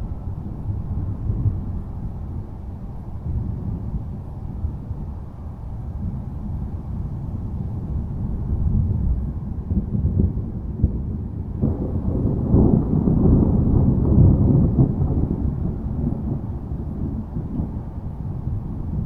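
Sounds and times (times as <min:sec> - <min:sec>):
low rolling thunder: 0:00.0 - 0:05.3, 0:05.9 - 0:19.0.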